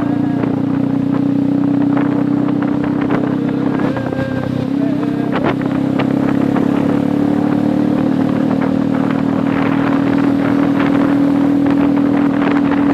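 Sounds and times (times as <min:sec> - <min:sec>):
low motor hum: 0:00.0 - 0:12.9.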